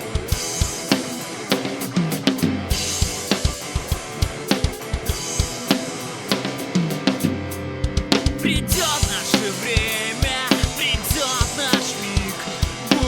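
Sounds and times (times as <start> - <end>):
drum kit rock beat: 0.0 - 13.0
instrumental backing: 0.0 - 13.0.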